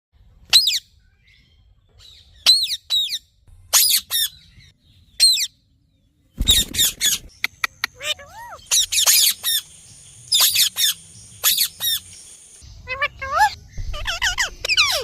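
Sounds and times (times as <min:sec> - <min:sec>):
parrot screeching: 0:08.0 - 0:09.6, 0:12.9 - 0:15.0.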